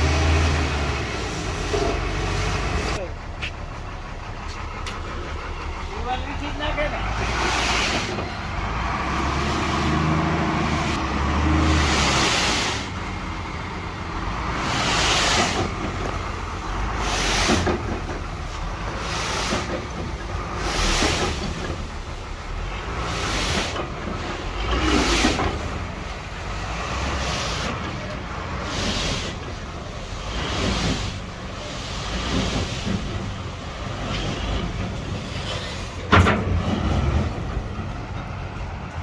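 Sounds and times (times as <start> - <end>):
heavy vehicle engine rumbling: 0.0 - 39.0
hissing surges of noise: 7.0 - 17.8.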